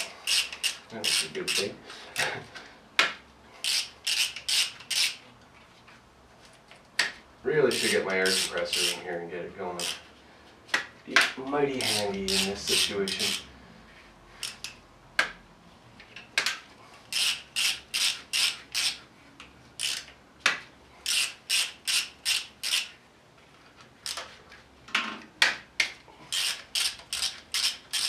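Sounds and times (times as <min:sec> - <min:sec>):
ratchet wrench rasping: 0:00.0 - 0:01.7, 0:03.6 - 0:05.2, 0:07.7 - 0:09.0, 0:09.8 - 0:10.1, 0:11.8 - 0:13.5, 0:14.4 - 0:14.8, 0:17.1 - 0:19.0, 0:19.8 - 0:20.1, 0:21.0 - 0:23.0, 0:26.3 - 0:28.0.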